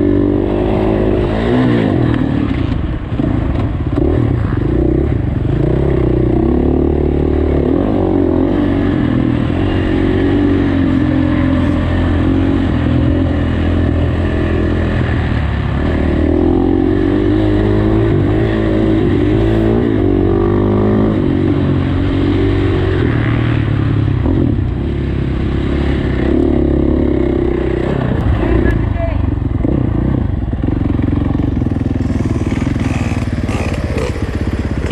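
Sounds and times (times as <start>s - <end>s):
dirt bike engine revving: 29.6s - 34.9s.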